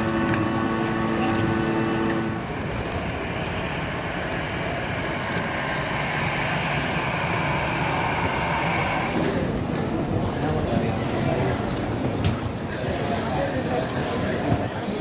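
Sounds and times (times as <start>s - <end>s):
vehicle running: 0.0s - 11.4s.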